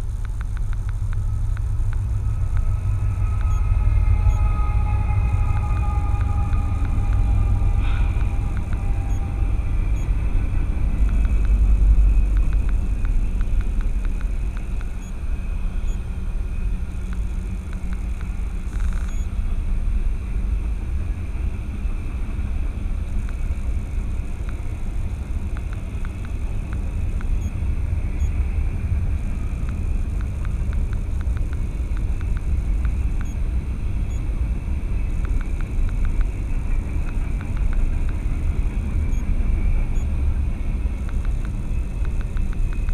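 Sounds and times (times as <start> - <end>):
faint ticks: 0.0 - 4.5, 5.4 - 9.3, 10.9 - 15.2, 16.9 - 19.3, 23.1 - 27.6, 29.2 - 33.4, 35.1 - 39.3, 40.9 - 42.9
low vehicle rumble: 0.0 - 42.9.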